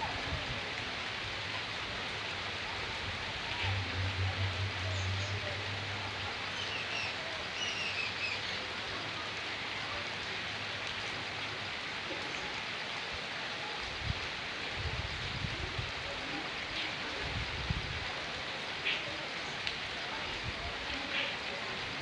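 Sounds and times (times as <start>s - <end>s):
rain hissing: 0.0s - 22.0s
river water running: 0.0s - 22.0s
low rumble: 3.0s - 6.6s.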